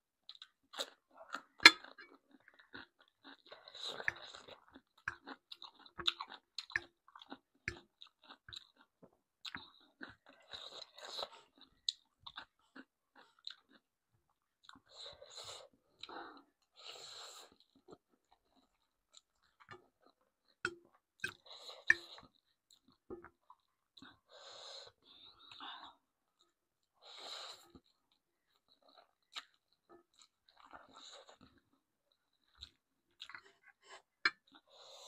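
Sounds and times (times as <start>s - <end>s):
person chewing with lip smacks: 0.3s - 13.9s, 27.8s - 34.7s.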